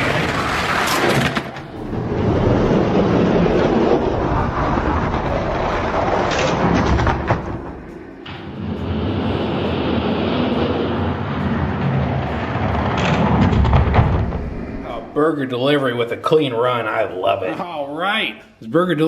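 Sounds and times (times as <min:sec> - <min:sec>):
toy trucks rumbling on plastic track: 0:00.0 - 0:14.9.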